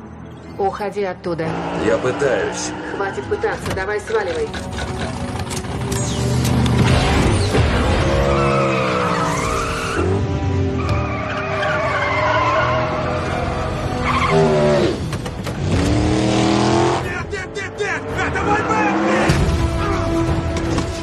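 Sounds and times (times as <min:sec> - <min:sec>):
car engine revving hard: 0:14.3 - 0:17.1.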